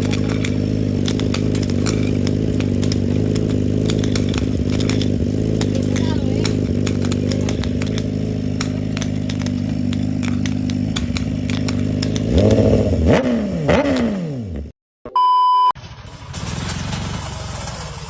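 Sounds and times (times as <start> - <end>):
scattered clicks: 0.0 - 14.2
engine revving: 0.0 - 14.7
short steady beep: 15.1 - 15.8.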